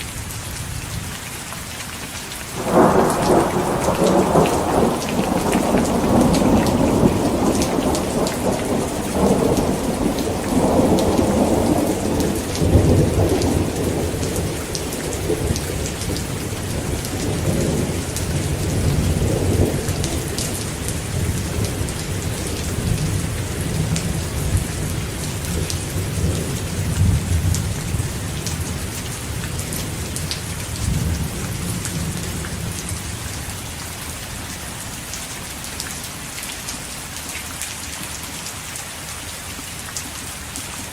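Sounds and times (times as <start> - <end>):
heavy rain falling: 0.0 - 40.9
rolling thunder: 2.6 - 33.4.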